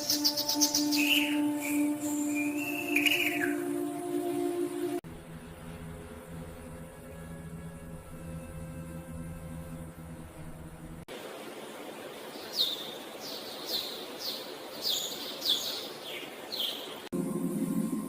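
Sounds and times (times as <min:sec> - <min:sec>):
bird calling: 0:00.0 - 0:04.9
music: 0:00.0 - 0:11.1, 0:17.1 - 0:18.0
outdoor hiss: 0:00.0 - 0:18.0.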